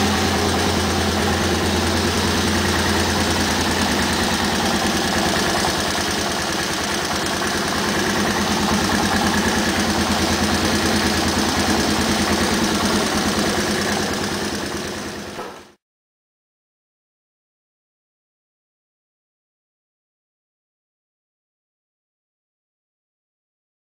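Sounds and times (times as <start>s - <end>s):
atv engine running: 0.0s - 15.8s.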